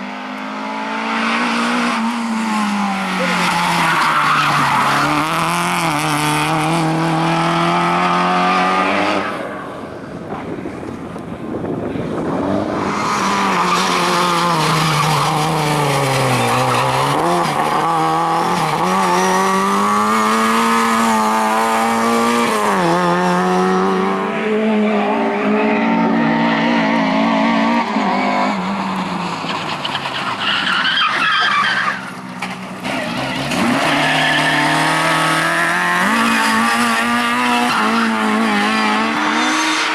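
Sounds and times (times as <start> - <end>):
rally car engines revving: 0.0 - 39.9
tyres squealing and skidding: 2.3 - 6.4, 12.8 - 19.5, 24.9 - 39.9.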